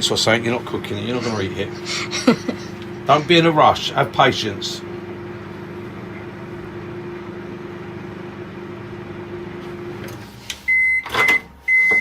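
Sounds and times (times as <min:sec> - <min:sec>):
microwave oven humming: 0:00.0 - 0:12.0
microwave beeping: 0:04.8 - 0:12.0.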